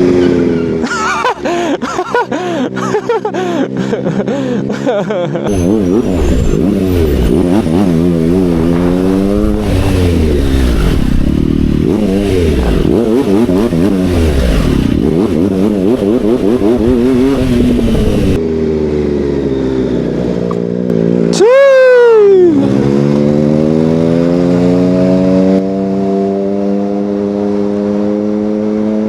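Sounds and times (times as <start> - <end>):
motorcycle engine revving: 0.0 - 1.8, 5.5 - 21.4, 22.5 - 29.0.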